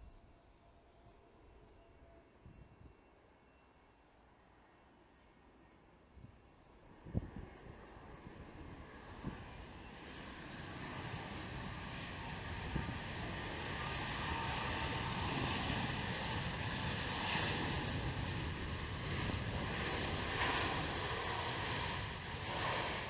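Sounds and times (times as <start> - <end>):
wind buffeting microphone: 7.0 - 9.8, 10.5 - 23.0
jet engines rushing: 7.2 - 23.0.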